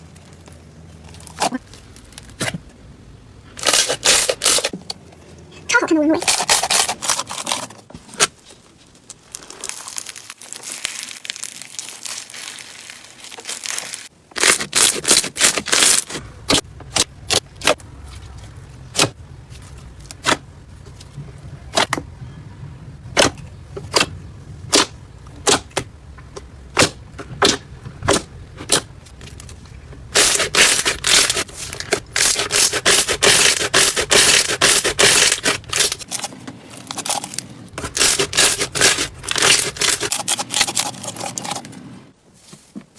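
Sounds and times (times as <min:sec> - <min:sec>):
slime popping and crackling: 0:08.9 - 0:16.6.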